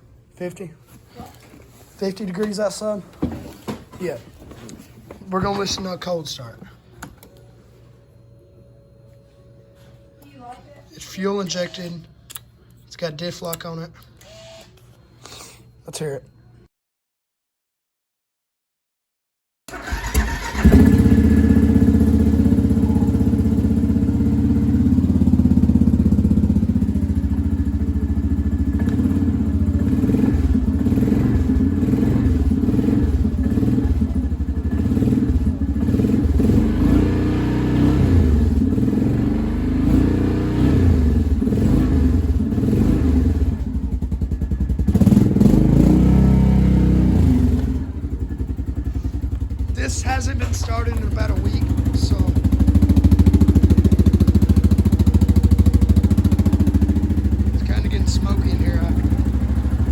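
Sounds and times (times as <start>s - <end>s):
atv engine starting and running: 19.7s - 59.9s.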